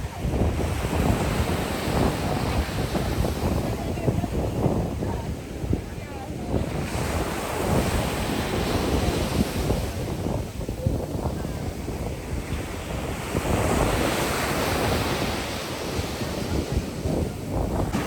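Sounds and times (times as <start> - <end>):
ocean surf washing: 0.0 - 18.0
wind buffeting microphone: 0.0 - 18.0.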